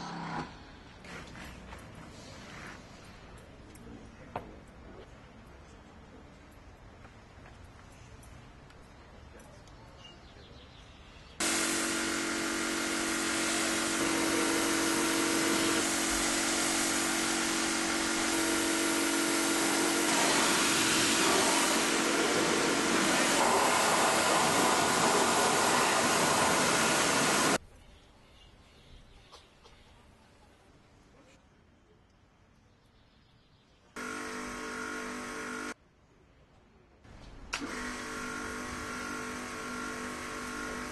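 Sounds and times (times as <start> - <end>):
car wash machine running: 11.4 - 27.6, 34.0 - 35.8, 37.6 - 40.9.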